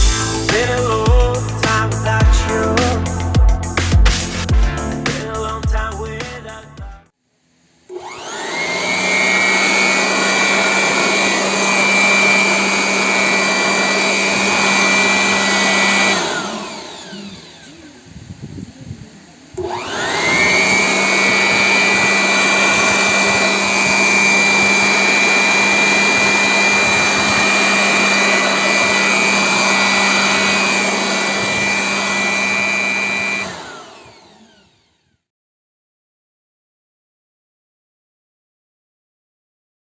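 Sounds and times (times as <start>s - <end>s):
electric blower-vacuum whine: 0.0s - 4.5s, 7.8s - 35.3s.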